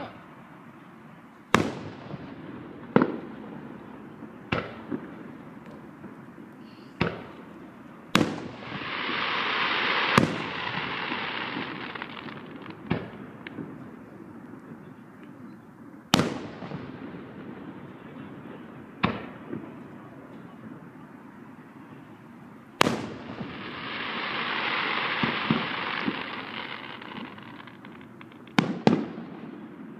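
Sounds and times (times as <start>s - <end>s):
firework crackling hiss: 7.0s - 14.0s, 22.8s - 29.9s
firework shells bursting: 8.2s - 13.8s, 22.8s - 29.5s.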